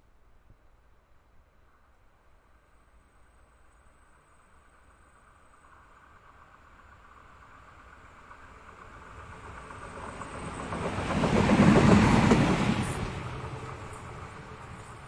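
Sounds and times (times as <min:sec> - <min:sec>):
small train passing: 0:02.4 - 0:15.0.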